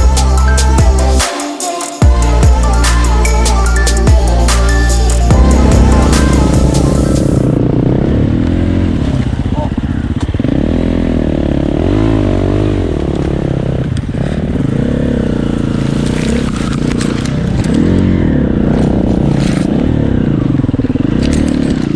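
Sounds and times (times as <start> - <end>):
motorcycle engine revving: 2.1 - 21.9.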